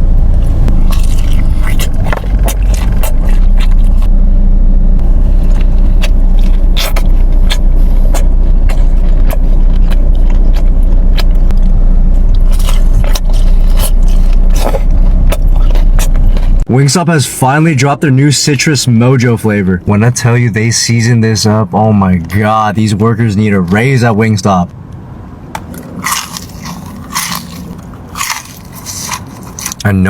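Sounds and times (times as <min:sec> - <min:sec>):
low rumble: 0:00.0 - 0:16.7
chewing and crunching food: 0:00.6 - 0:04.1, 0:05.0 - 0:16.7, 0:25.6 - 0:30.0.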